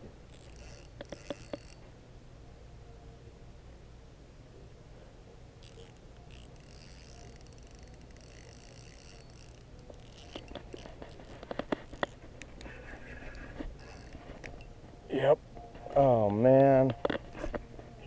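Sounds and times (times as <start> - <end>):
fishing reel ticking whirr: 0.2 - 2.0, 5.6 - 14.8.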